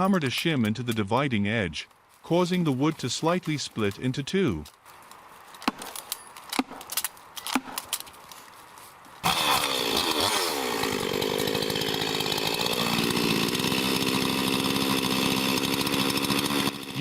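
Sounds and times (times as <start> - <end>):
chainsaw cutting wood: 5.6 - 6.9, 9.2 - 17.0.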